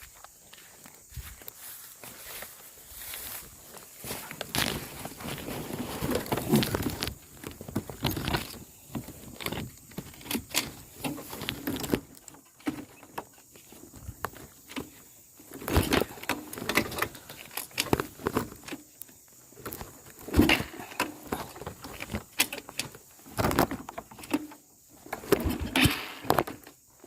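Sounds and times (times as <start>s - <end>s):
rustling of handled objects: 0.0s - 27.0s.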